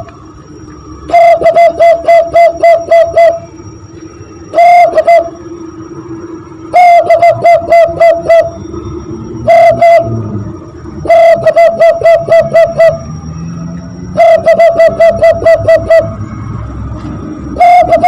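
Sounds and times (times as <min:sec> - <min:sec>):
dove call imitated with hands: 0:01.1 - 0:03.4, 0:04.5 - 0:05.3, 0:06.7 - 0:08.5, 0:09.5 - 0:10.1, 0:11.0 - 0:13.0, 0:14.2 - 0:16.1, 0:17.6 - 0:18.0.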